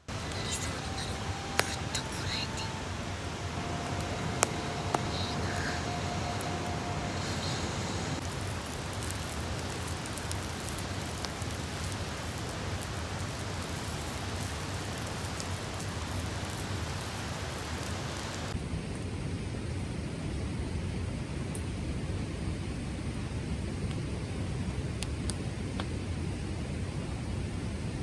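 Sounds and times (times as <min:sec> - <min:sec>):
campfire crackling: 0:00.0 - 0:28.0.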